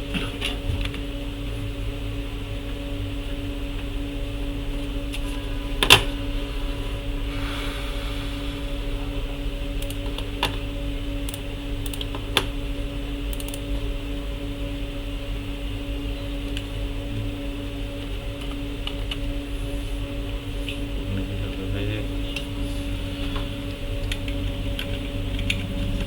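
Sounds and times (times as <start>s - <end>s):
steady electrical hum: 0.0s - 26.0s
computer keyboard clicks: 11.3s - 12.5s, 13.3s - 13.7s.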